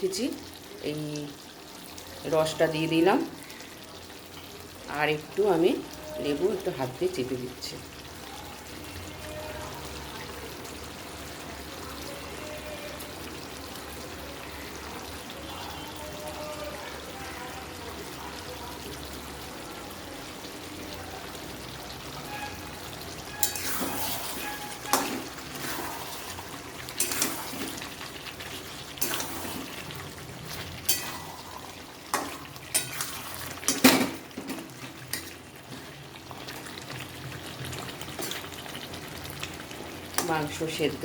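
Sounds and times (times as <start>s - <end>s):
food sizzling in a pan: 0.0s - 41.0s
spoon scraping a pan: 22.2s - 36.5s, 37.6s - 38.6s.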